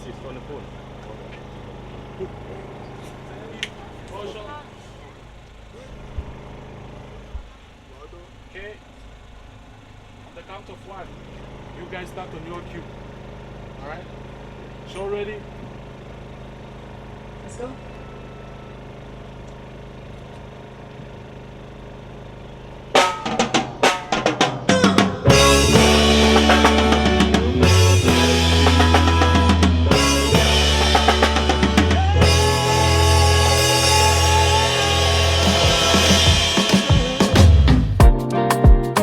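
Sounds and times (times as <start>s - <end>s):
drum kit hits: 23.0s - 39.0s
live band with heavy bass: 23.0s - 39.0s.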